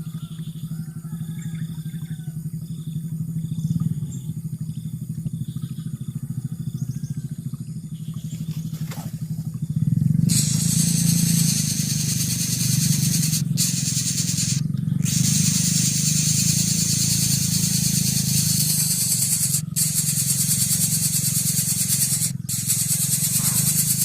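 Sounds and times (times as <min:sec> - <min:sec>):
faint bird chirps: 0:00.0 - 0:24.0
small engine running: 0:00.0 - 0:24.0
loud hiss: 0:10.3 - 0:24.0.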